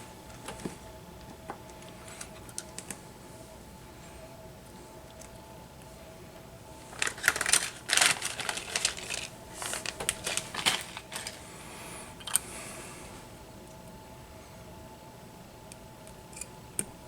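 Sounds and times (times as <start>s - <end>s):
faint steady hum: 0.0s - 17.0s
rustling scrapes: 6.9s - 11.4s.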